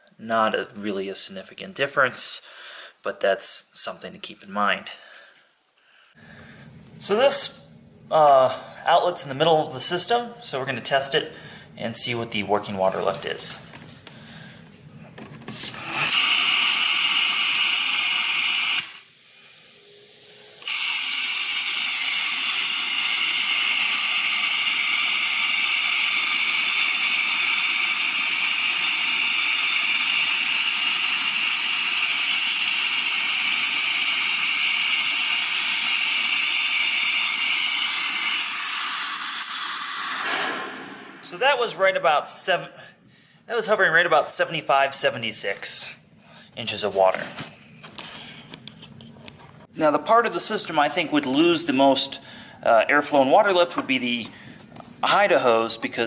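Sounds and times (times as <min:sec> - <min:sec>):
vacuum rushing hiss: 0:15.5 - 0:41.8.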